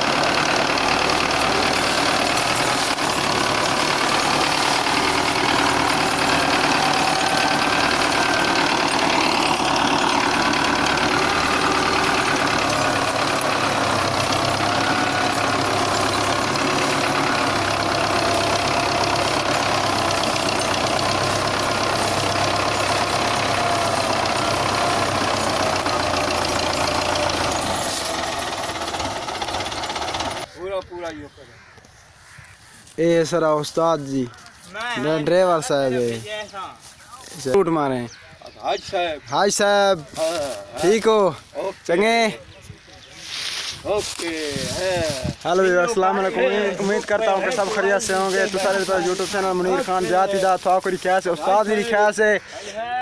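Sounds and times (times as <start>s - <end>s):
diesel tractor engine running: 0.0s - 30.5s, 43.3s - 52.4s.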